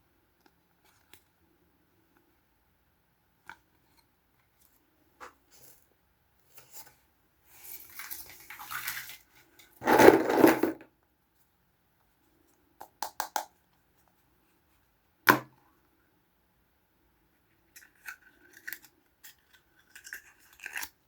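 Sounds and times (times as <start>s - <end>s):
plastic packaging rustling: 7.7s - 10.8s.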